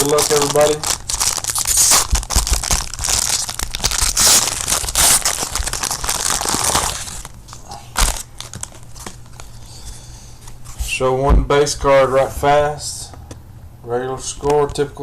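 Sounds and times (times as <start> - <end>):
plastic wrapper tearing and crinkling: 0.0 - 9.4.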